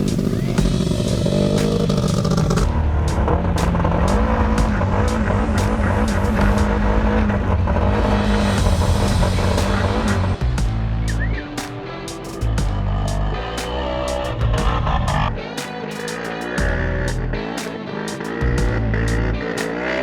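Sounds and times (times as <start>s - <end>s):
race car engine revving: 0.0s - 11.3s, 16.1s - 20.0s.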